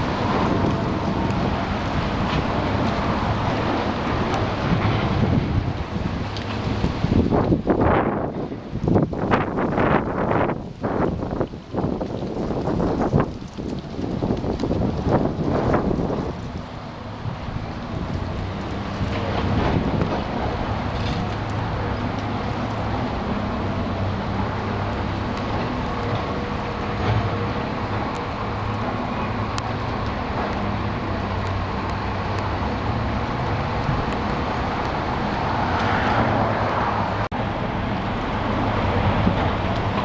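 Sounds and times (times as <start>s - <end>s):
excavator diesel engine running: 0.0s - 8.7s, 14.8s - 40.0s
rushing and scraping noise: 0.0s - 40.0s.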